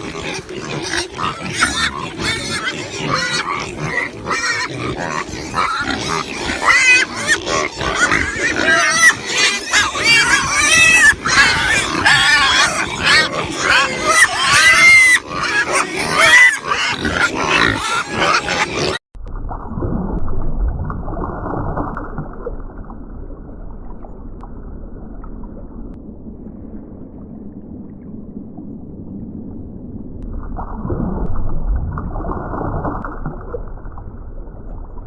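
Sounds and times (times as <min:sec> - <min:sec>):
pigs calling: 0:00.0 - 0:19.0.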